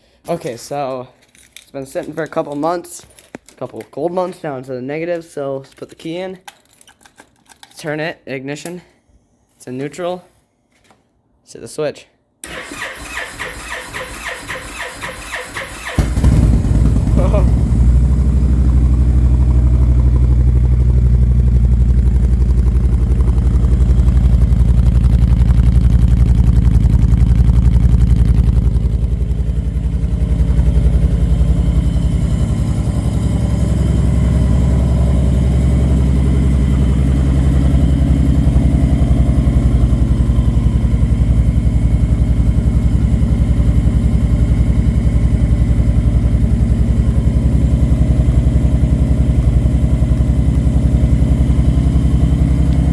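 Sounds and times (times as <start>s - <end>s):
motorcycle engine idling: 15.9s - 52.9s.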